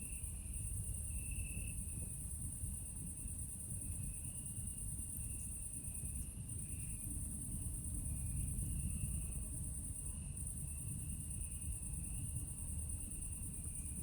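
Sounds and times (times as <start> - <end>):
high-pitched chorus of night insects: 0.0 - 14.0.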